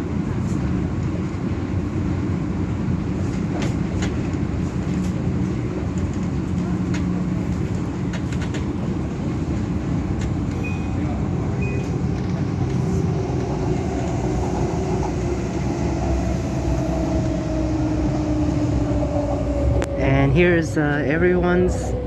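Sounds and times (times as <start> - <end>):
train wheels rumbling: 0.0 - 22.0
train motor whine: 10.5 - 22.0.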